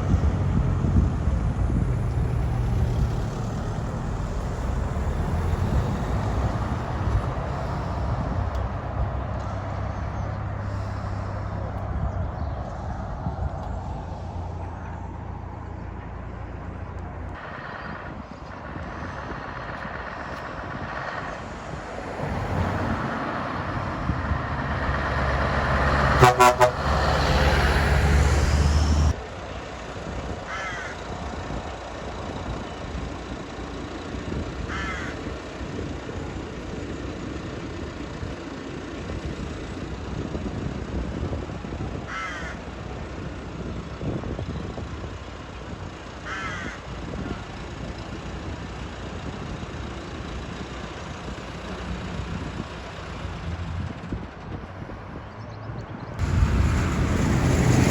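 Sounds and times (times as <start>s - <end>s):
tractor engines passing: 0.0s - 57.9s
horn toot: 26.0s - 27.5s
crows cawing: 30.5s - 31.1s, 34.7s - 35.4s, 42.1s - 42.7s, 46.2s - 46.9s.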